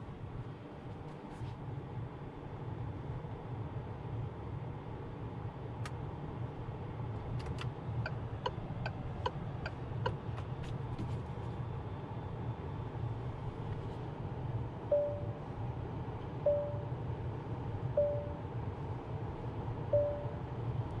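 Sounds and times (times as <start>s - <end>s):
low rumble inside car cabin: 0.0s - 21.0s
turn signal ticking: 7.4s - 10.3s.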